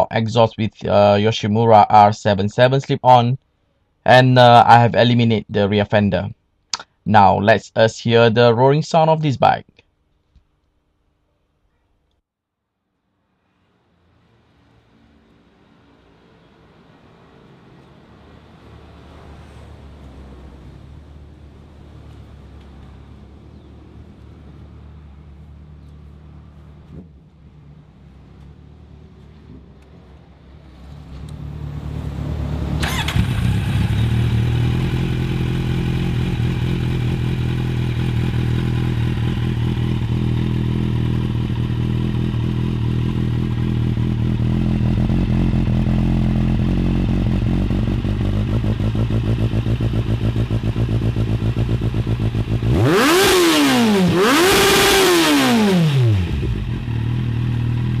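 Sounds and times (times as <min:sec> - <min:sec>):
motorcycle engine idling: 0:32.8 - 0:52.7, 0:56.1 - 0:58.0.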